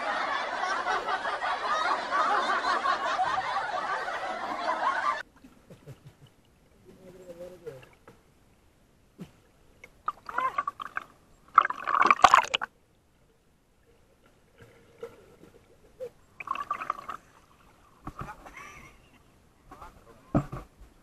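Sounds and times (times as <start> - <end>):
water gurgling and bubbling: 10.0 - 12.7, 14.4 - 17.9.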